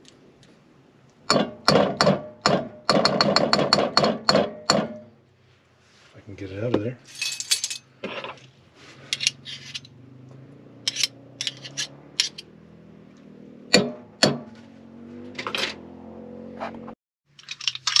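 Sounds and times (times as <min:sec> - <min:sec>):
spoons and containers clinking: 0:07.1 - 0:07.8.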